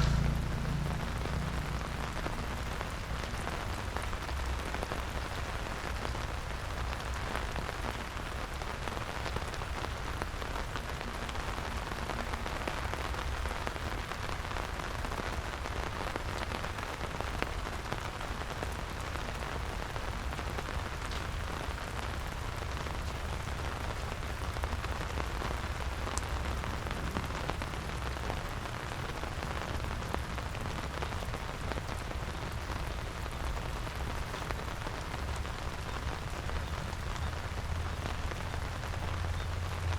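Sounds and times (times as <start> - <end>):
low rumble: 0.0 - 4.0
rain falling: 0.0 - 39.9.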